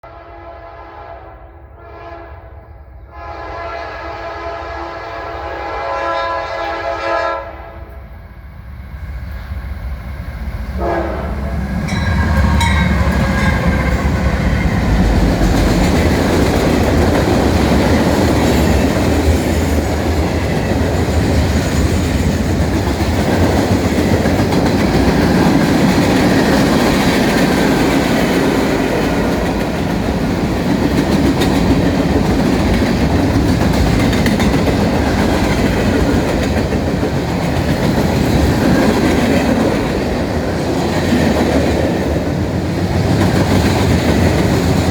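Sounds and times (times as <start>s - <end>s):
diesel locomotive engine rumble: 7.6s - 44.9s
freight cars rolling roar: 8.2s - 44.9s
wheels clacking over rail joints: 11.8s - 42.2s.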